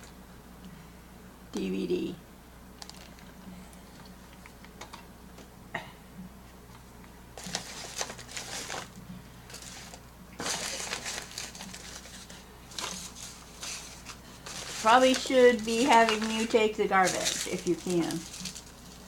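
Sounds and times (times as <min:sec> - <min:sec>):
packaging crinkling: 0:02.8 - 0:03.4, 0:07.4 - 0:19.0.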